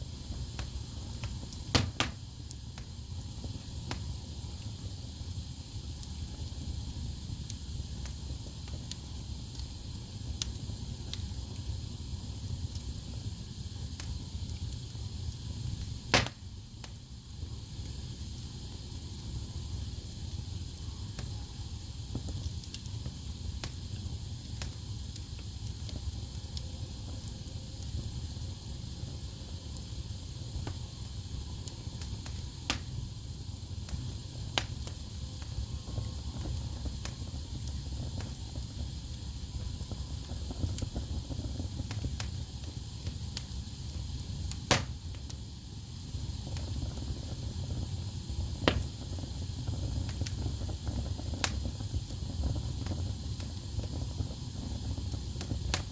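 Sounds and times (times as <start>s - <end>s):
fire crackling: 0.0s - 55.9s
sharp loud pops: 1.7s - 2.2s, 16.1s - 16.4s.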